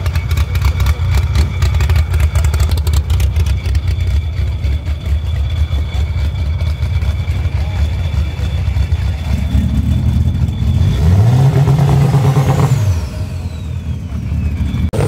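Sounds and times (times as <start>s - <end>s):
car engine choppy idle: 0.0s - 11.0s.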